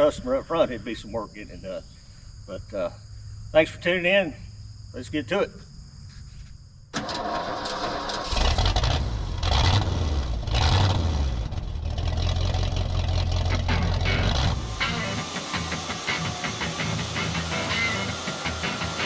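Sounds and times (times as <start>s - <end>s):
engine rumbling: 7.0s - 19.0s.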